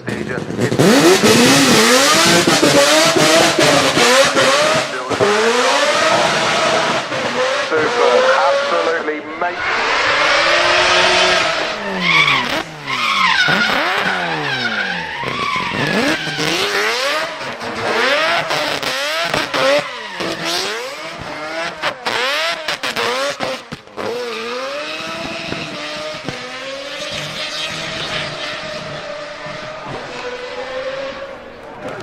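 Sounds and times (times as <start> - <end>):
car engine revving hard: 0.1 - 32.0
tyre squeal: 9.5 - 22.1, 26.8 - 30.4.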